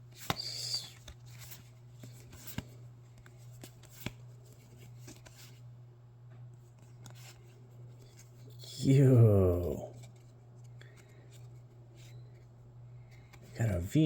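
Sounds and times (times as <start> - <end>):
steady low hum: 0.0 - 14.0
trading cards rustling: 0.1 - 5.6.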